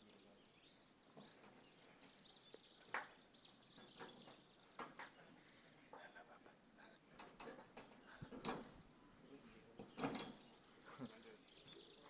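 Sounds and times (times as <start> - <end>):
small birds chirping: 8.6 - 12.0.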